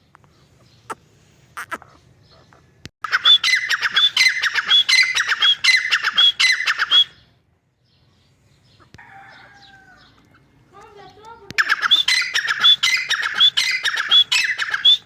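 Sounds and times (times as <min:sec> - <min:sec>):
francolin calling: 0:11.1 - 0:15.0.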